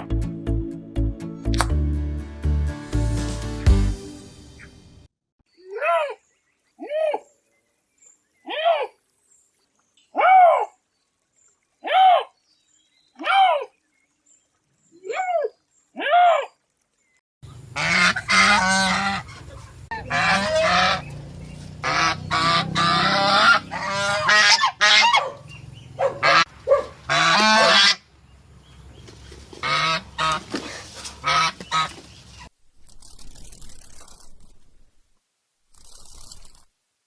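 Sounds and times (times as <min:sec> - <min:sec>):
waterfowl honking: 0:17.7 - 0:21.1, 0:21.8 - 0:26.5, 0:27.1 - 0:28.0, 0:29.6 - 0:30.5, 0:31.2 - 0:32.0.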